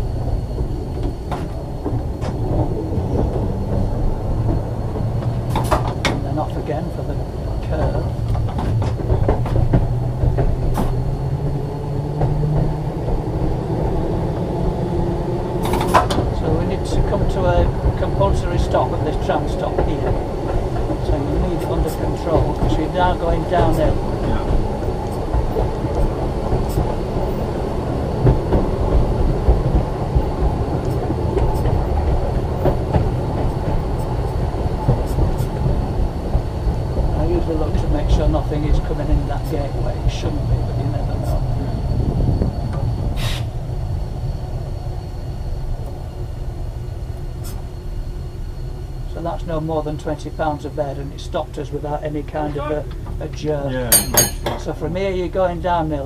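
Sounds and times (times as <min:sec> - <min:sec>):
tram rumbling on track: 0:00.0 - 0:56.0
sharp clicks and knocks: 0:00.6 - 0:06.3, 0:07.7 - 0:11.1, 0:15.6 - 0:16.3.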